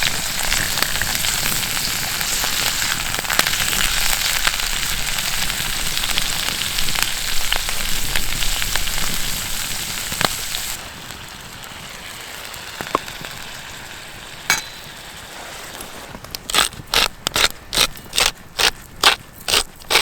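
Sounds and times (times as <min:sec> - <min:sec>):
food sizzling in a pan: 0:00.0 - 0:15.7
small metallic clink: 0:14.5 - 0:14.9.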